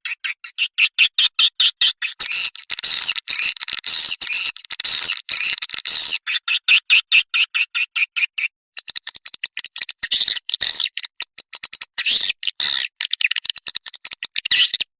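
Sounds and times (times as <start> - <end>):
swiftlets twittering chirps: 2.1 - 6.6.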